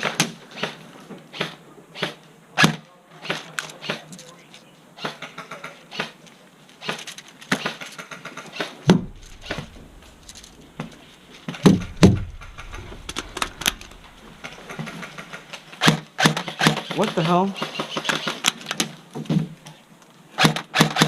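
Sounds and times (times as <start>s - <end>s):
airsoft rifle shots: 7.6s - 16.8s, 20.4s - 21.0s
dull low bumps: 8.9s - 15.8s.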